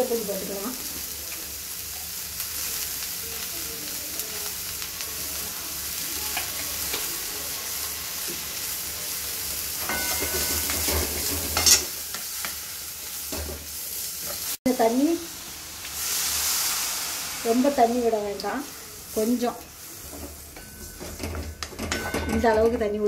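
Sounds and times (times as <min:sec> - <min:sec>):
vegetables sizzling in hot oil: 0:00.0 - 0:22.8.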